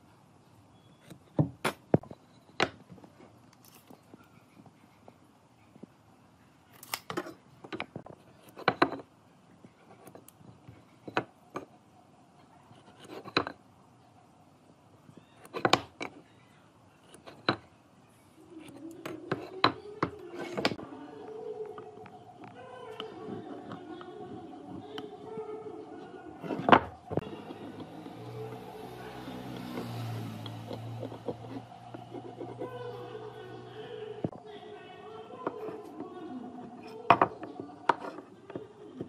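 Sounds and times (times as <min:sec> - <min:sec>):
tools and wood knocking: 0:07.1 - 0:09.1, 0:10.0 - 0:11.8, 0:13.0 - 0:13.6, 0:17.1 - 0:17.7, 0:26.4 - 0:32.6.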